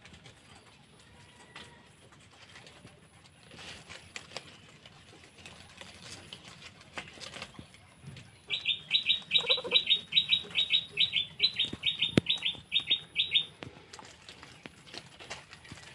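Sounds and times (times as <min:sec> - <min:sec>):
bird chirping: 0:08.3 - 0:13.6.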